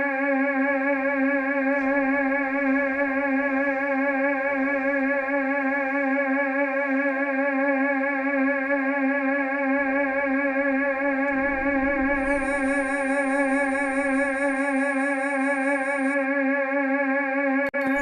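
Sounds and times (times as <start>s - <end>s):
sustained electronic tone with vibrato: 11.0s - 16.4s.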